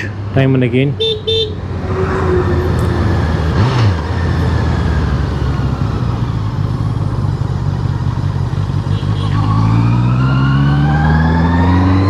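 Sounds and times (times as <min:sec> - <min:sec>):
wind and road noise: 0:00.0 - 0:12.0
motorcycle engine running: 0:03.1 - 0:10.8.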